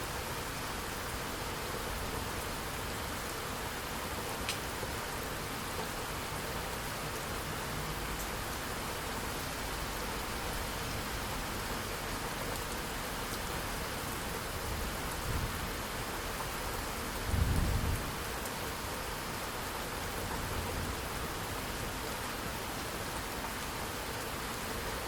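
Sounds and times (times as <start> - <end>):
thunder rumbling: 17.3 - 18.1.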